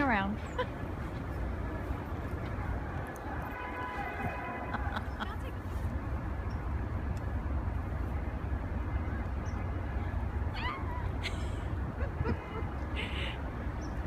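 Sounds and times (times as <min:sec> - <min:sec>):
blizzard wind buffeting microphone: 0:10.0 - 0:14.0.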